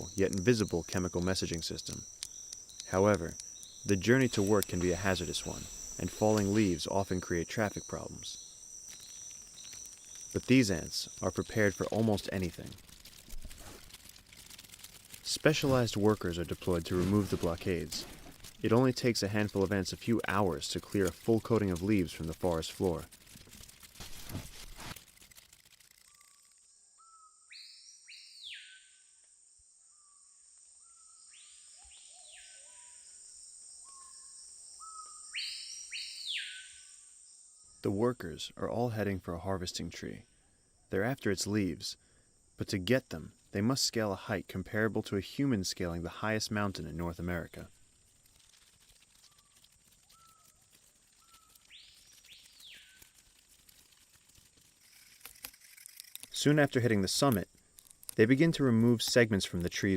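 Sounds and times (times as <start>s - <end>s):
insect drone: 0.0s - 37.9s, 40.0s - 59.9s
faint bird whistles: 27.0s - 29.0s, 33.8s - 37.0s
rising and falling bird calls: 27.0s - 29.0s, 33.8s - 37.0s, 48.8s - 53.9s.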